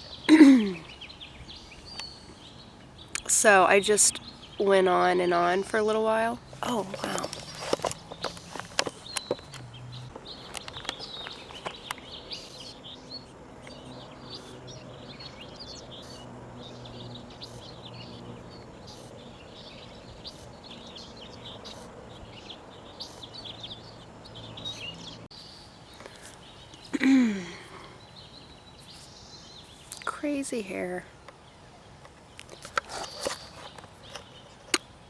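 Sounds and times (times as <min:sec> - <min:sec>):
small birds chirping: 0:00.0 - 0:35.0
sharp clicks: 0:06.9 - 0:12.1.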